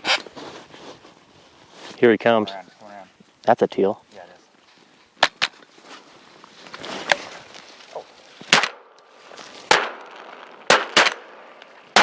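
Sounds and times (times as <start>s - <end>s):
shotgun shots: 8.5s - 8.9s, 9.7s - 11.4s.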